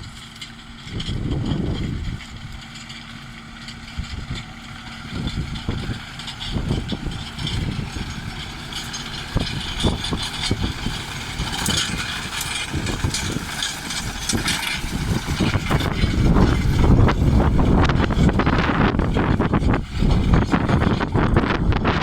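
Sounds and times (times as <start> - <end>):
tractor diesel engine running: 0.0 - 22.0
clicks and rattles: 5.1 - 21.4.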